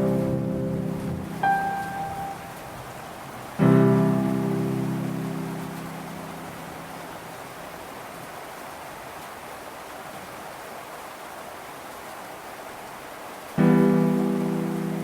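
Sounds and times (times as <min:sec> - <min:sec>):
plucked note of gentle music: 0:00.0 - 0:02.7
rain falling: 0:00.0 - 0:15.0.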